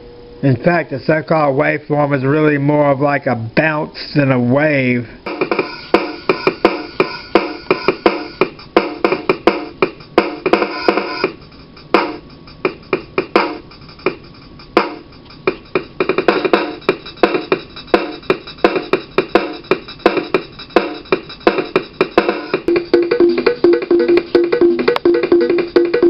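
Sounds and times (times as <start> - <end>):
drum machine beat: 5.3 - 26.0.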